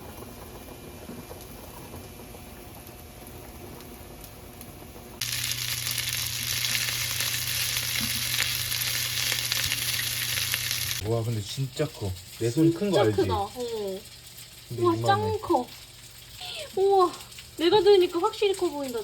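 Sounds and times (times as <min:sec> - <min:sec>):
food sizzling in a pan: 0:05.2 - 0:19.0.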